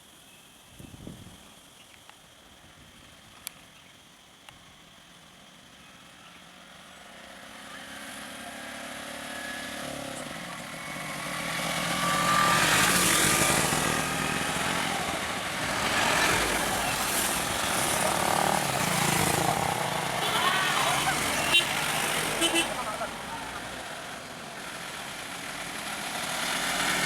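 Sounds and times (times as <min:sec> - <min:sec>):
vehicle engine approaching: 0:06.6 - 0:27.0.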